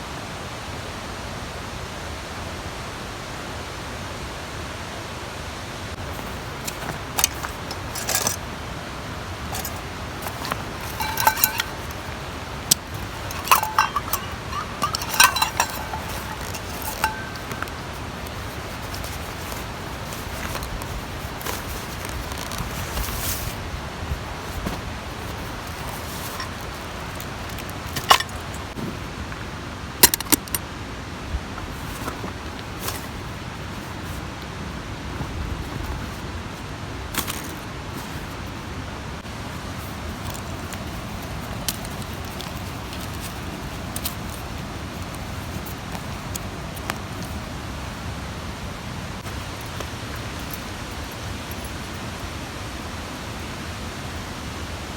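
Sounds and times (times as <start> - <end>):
small metal objects clinking: 6.1 - 8.6, 9.4 - 23.5, 25.2 - 28.8, 30.0 - 30.6.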